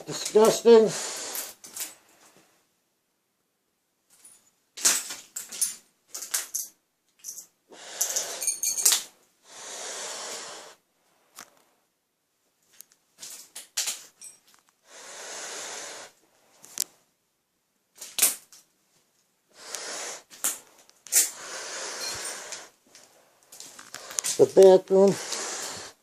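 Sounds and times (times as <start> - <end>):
breathing through gas mask: 0.8 - 1.6, 7.7 - 8.7, 9.4 - 10.8, 14.8 - 16.2, 19.5 - 22.8, 25.0 - 26.0.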